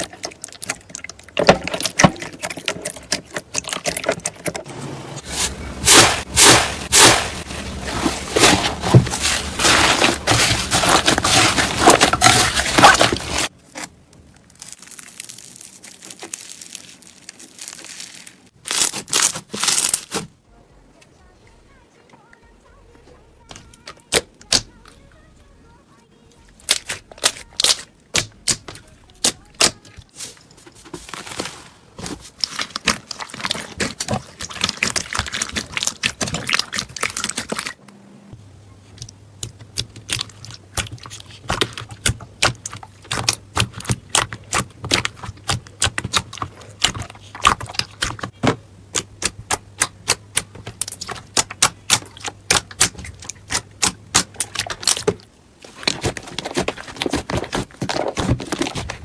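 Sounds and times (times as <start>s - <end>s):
low steady hum: 19.9s - 59.0s.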